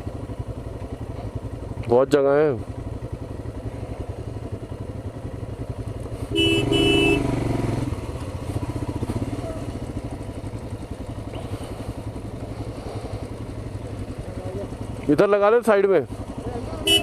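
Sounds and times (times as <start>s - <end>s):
motorcycle engine running: 0.0s - 17.0s
horn honking: 6.2s - 7.9s, 16.7s - 17.0s.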